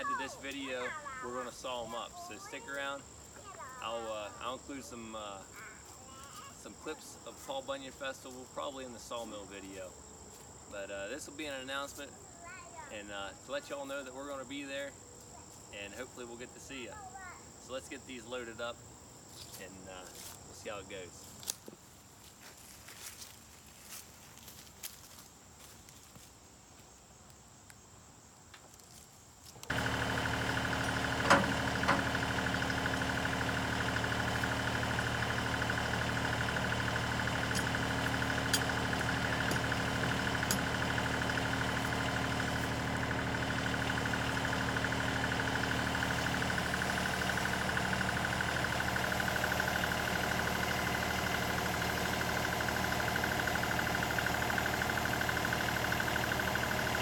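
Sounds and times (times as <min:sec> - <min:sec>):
tractor diesel engine running: 0:00.0 - 0:09.8, 0:29.7 - 0:57.0
sharp clanks: 0:37.0 - 0:41.4.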